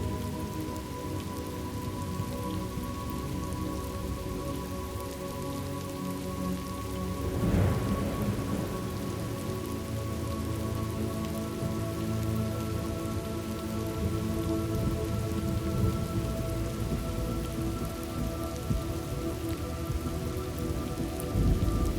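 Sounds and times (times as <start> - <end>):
steady rain: 0.0 - 21.9
thunder rolling: 7.2 - 10.2, 14.0 - 21.9.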